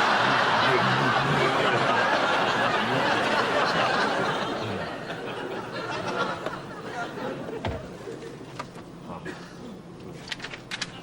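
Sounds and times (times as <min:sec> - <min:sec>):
audience laughing: 0:00.0 - 0:08.4.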